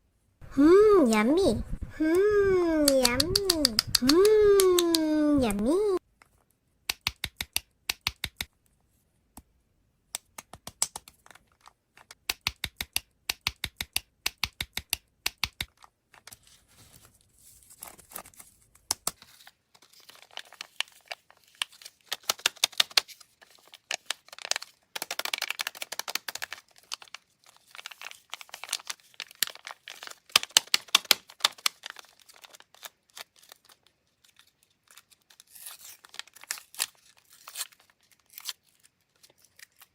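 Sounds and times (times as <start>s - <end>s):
sharp clicking taps: 6.9s - 8.5s, 12.3s - 15.7s
plastic candy wrappers crinkling: 15.6s - 39.9s.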